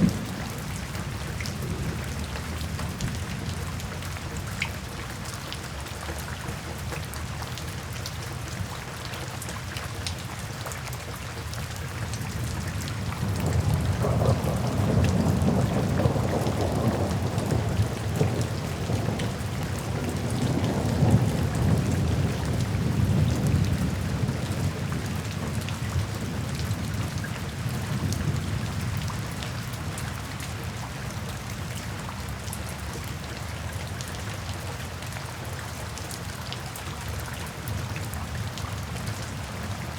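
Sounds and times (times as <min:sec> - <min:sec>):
distant thunder rolling: 0:00.0 - 0:03.7, 0:13.2 - 0:25.6
steady rain falling: 0:00.0 - 0:39.9.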